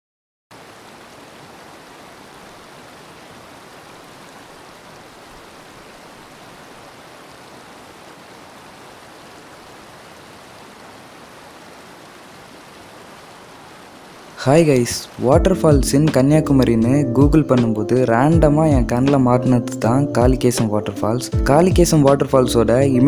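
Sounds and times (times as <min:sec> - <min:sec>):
flowing water rushing: 0:00.5 - 0:16.4.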